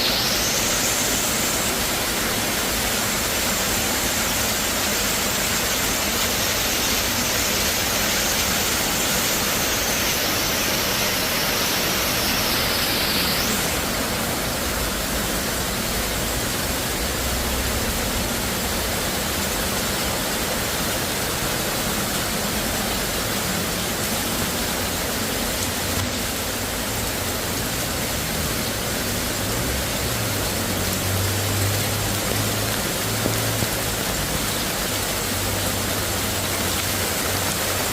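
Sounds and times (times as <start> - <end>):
heavy rain: 0.0 - 37.9
high tone sliding downward: 11.8 - 13.9.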